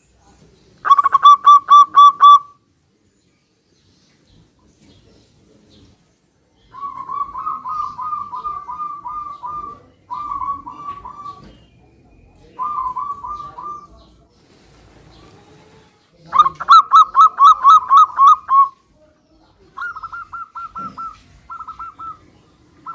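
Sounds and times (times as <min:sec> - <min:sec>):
dove cooing: 0:00.8 - 0:02.6, 0:06.7 - 0:11.6, 0:12.4 - 0:14.1, 0:16.3 - 0:18.8, 0:19.7 - 0:22.9.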